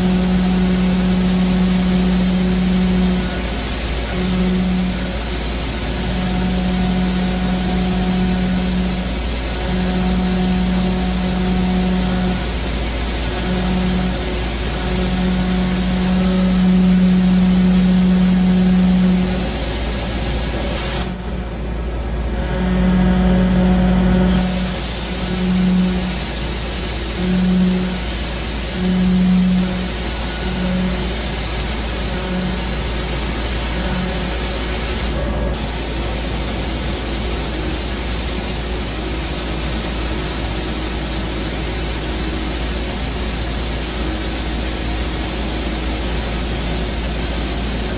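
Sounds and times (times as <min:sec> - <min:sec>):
hiss of coolant spray: 0:00.0 - 0:21.1, 0:24.3 - 0:47.9
low machine hum: 0:00.0 - 0:47.9.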